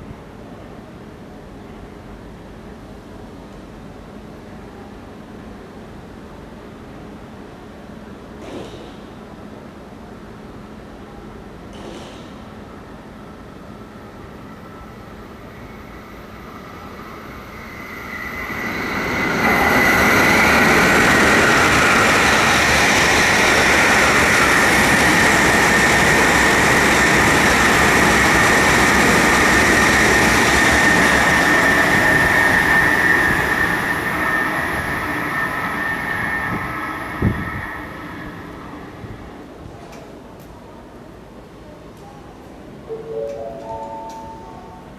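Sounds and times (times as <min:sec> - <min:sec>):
high-speed train rushing past: 0:12.4 - 0:40.3.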